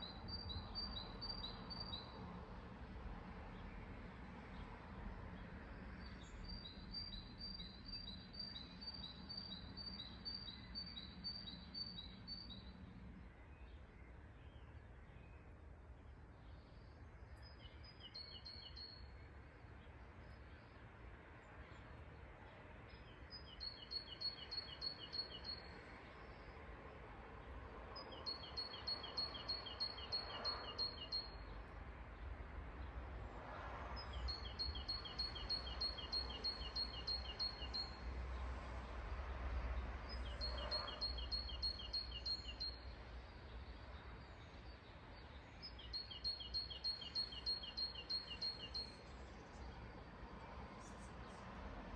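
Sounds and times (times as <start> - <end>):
songbird trilling: 34.3 - 38.0, 45.7 - 49.0.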